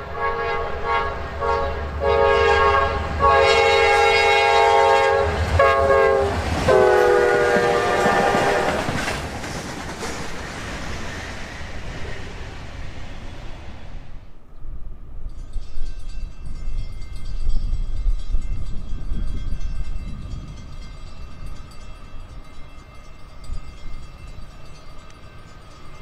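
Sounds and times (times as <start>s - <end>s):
diesel train low rumble: 0.0s - 26.0s.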